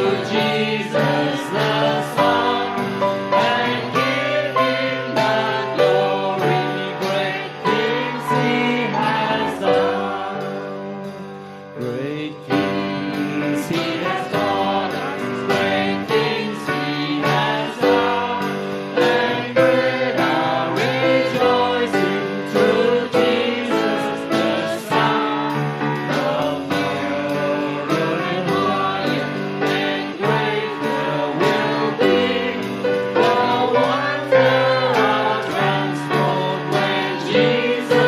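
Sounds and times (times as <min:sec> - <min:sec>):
people singing melody: 0:00.0 - 0:38.0
worship band with piano and drums: 0:00.0 - 0:38.0.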